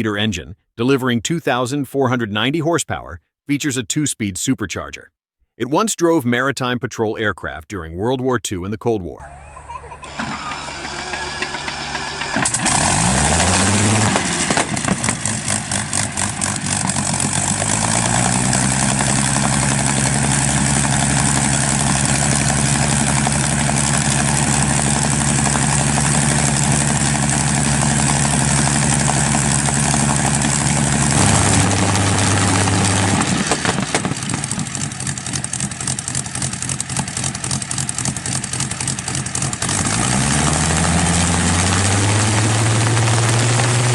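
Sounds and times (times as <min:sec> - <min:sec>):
aero engine starting and running: 0:09.2 - 0:43.9.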